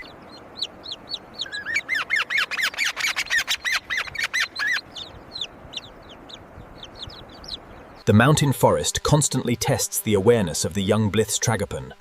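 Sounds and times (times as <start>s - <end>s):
bird chirping rapidly: 0.0s - 8.1s.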